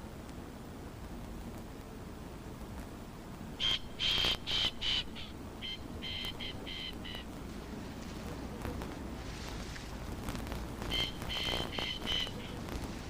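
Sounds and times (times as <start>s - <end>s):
bird calling: 3.6s - 7.4s, 10.8s - 12.9s.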